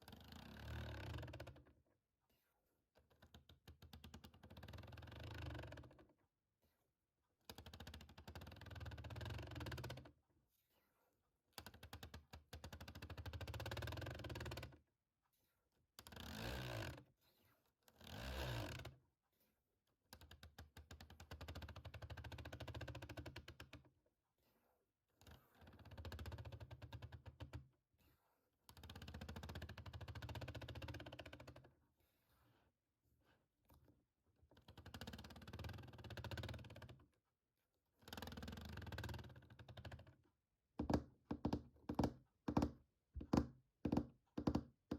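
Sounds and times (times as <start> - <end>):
fast tapping on small object: 40.8 - 44.9.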